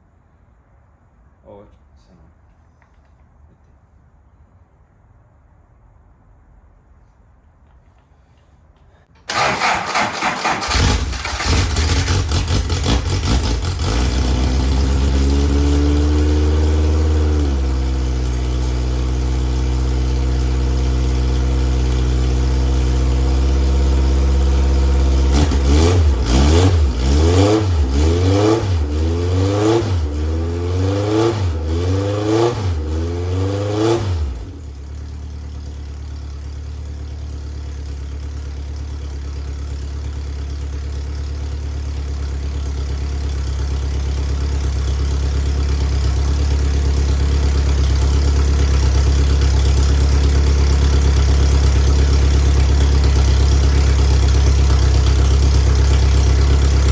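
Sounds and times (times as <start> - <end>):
race car engine cranking: 9.1 - 13.4
race car engine idling: 34.7 - 56.9.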